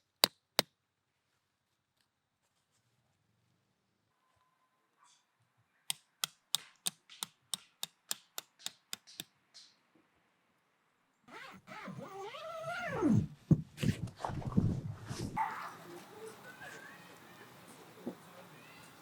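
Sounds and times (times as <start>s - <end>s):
sharp clicks: 5.9s - 9.3s
whining animal cry: 11.3s - 13.3s.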